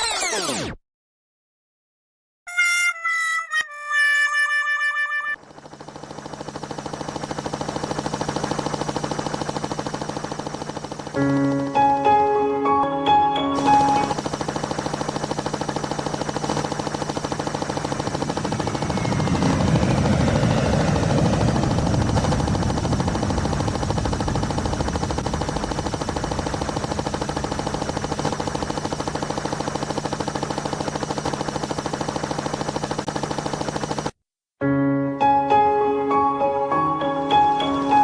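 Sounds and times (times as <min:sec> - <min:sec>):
helicopter rotor chopping: 0:03.9 - 0:34.2.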